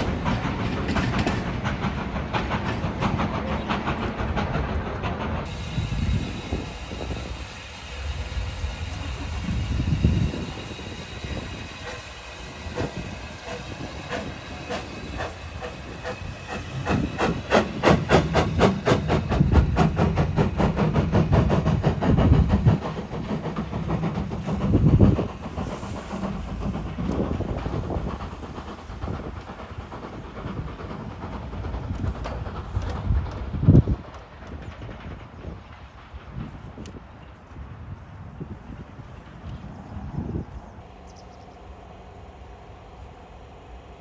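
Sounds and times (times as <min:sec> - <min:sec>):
steam locomotive passing: 0:00.0 - 0:44.0
hiss of steam: 0:05.5 - 0:33.7.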